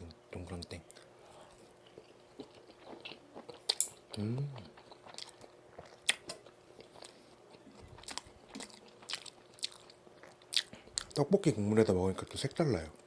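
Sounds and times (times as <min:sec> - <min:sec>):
close chewing: 0:01.0 - 0:11.2.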